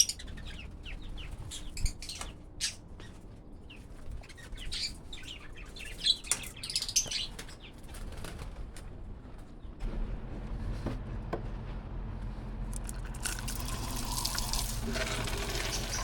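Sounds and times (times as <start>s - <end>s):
wings flapping: 7.2s - 9.1s.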